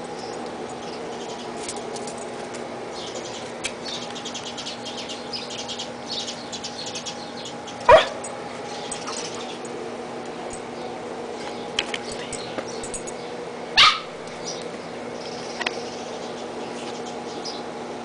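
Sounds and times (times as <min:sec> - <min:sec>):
puppy yelp: 0:07.9 - 0:08.2, 0:13.8 - 0:14.1.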